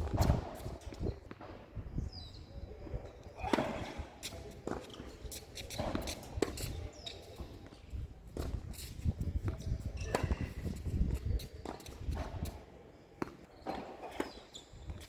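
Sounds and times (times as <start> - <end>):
tennis ball hits and bounces: 3.4 - 8.6, 9.4 - 12.6, 13.2 - 15.0.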